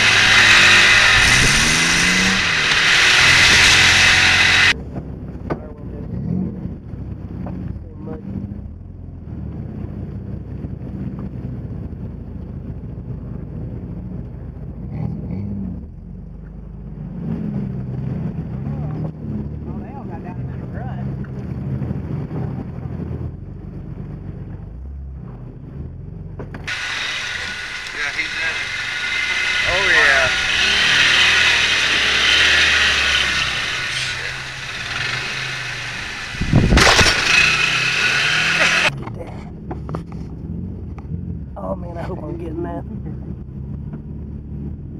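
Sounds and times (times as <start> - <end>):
pickup truck engine revving: 0.0 - 4.8, 26.6 - 39.1.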